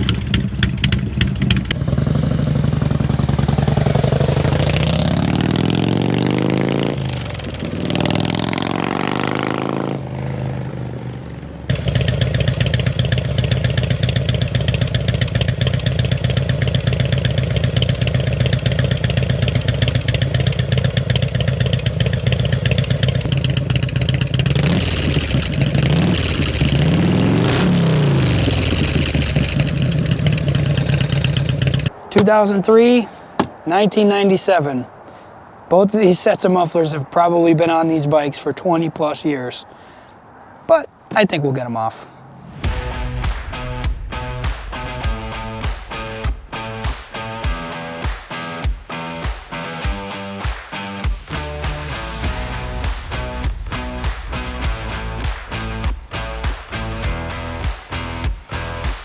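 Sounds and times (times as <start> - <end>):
motorcycle engine idling: 0.0 - 5.9, 10.7 - 31.9
motorcycle engine revving: 0.0 - 32.0, 51.3 - 59.0.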